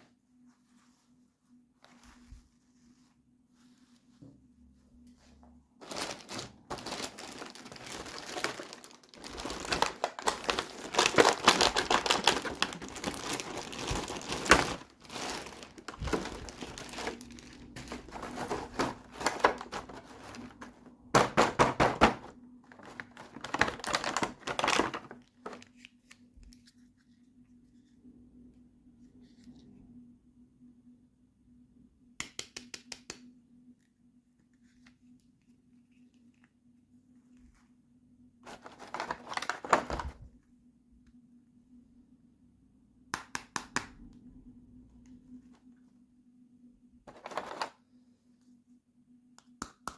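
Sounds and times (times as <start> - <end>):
packaging crinkling: 5.8 - 25.8, 38.4 - 40.2.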